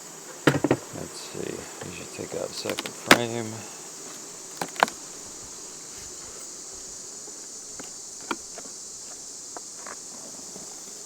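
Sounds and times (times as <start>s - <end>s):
crickets chorus: 0.0s - 11.0s.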